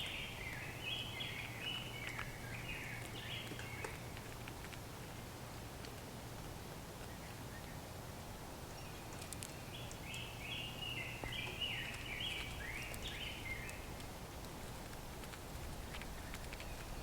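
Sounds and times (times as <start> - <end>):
steady low outdoor hum: 0.0 - 17.0.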